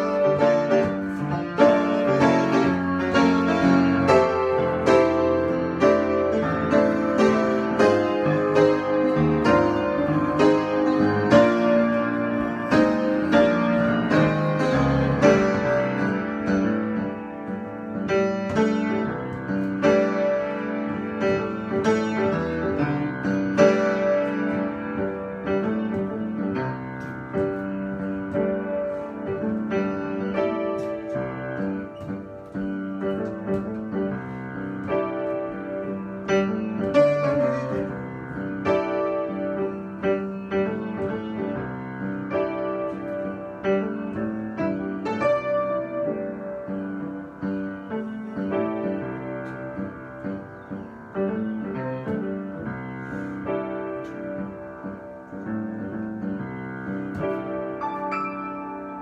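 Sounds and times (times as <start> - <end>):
piano improvisation: 0.0 - 59.0.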